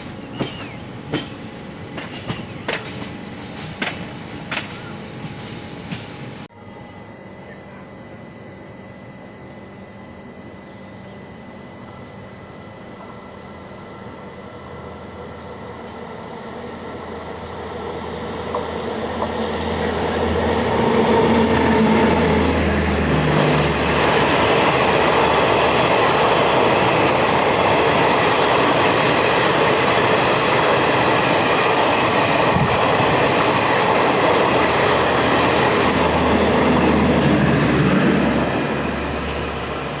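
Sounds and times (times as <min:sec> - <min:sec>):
train wheels rolling on rails: 0:00.0 - 0:06.5, 0:15.8 - 0:40.0
high wheel squeal: 0:00.2 - 0:02.6, 0:04.8 - 0:06.3, 0:18.4 - 0:20.0, 0:23.1 - 0:24.1.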